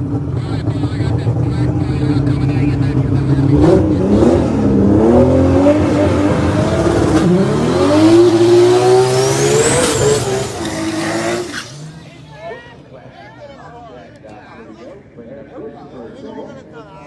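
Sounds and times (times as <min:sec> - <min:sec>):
race car engines revving: 0:00.0 - 0:13.3.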